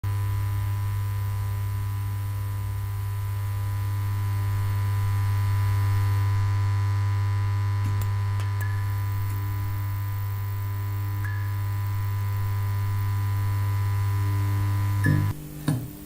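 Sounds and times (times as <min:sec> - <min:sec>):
low synthesizer drone: 0:07.9 - 0:15.5
thin high steady tone: 0:08.0 - 0:15.4.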